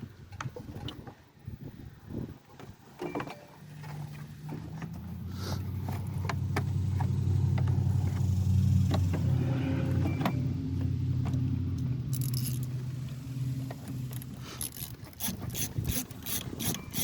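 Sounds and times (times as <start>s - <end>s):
vehicle engine humming: 3.4s - 17.0s
tools clicking and knocking: 14.1s - 17.0s.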